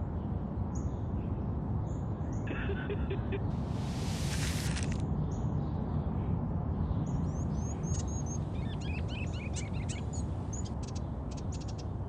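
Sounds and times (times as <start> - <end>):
small birds chirping: 3.4 - 12.0.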